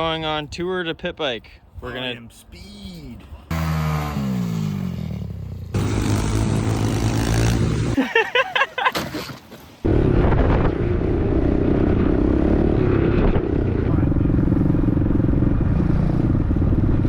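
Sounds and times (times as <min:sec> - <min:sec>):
small motorbike engines running: 0:05.3 - 0:08.0.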